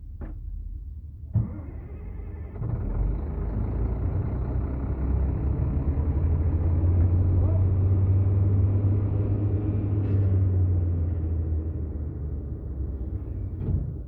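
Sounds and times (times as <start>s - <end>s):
heavy machine engine rumbling: 0.0s - 14.0s.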